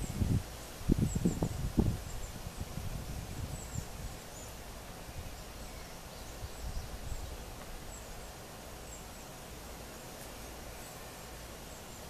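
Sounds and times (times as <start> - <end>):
small birds chirping: 0.0 - 12.0
steady hiss: 0.0 - 12.0.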